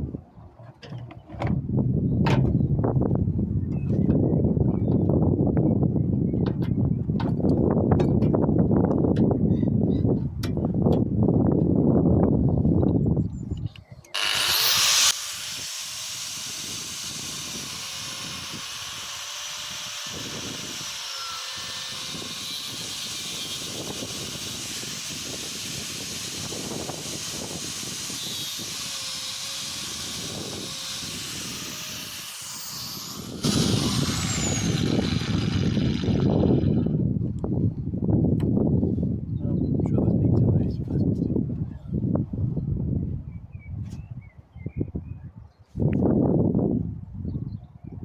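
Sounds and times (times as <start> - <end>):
power tool running: 14.2 - 37.0.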